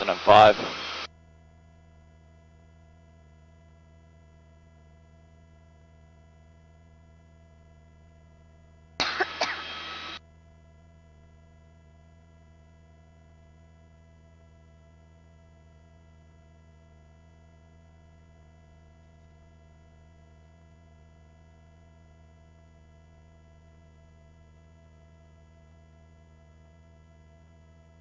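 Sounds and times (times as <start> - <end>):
intercom low hum: 0.0 - 1.1, 9.0 - 10.2
cough-like burst through microphone: 9.0 - 10.2.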